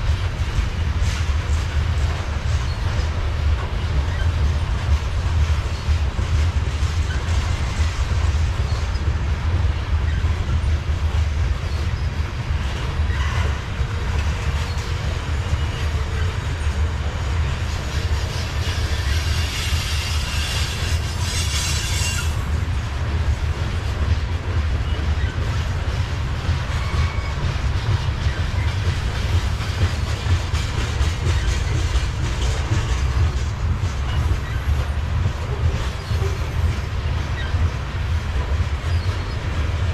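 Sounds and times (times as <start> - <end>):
freight train rumbling past: 0.0 - 39.9
wheels clicking over rail joints: 0.0 - 39.9
metallic wheel squeal: 8.6 - 9.1, 13.0 - 16.8, 17.8 - 22.5, 26.5 - 29.0, 30.7 - 37.8, 38.8 - 39.6.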